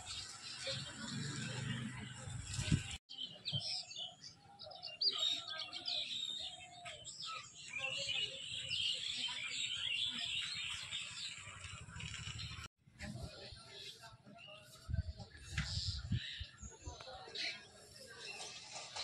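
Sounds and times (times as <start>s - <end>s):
small birds chirping: 0.0s - 12.7s.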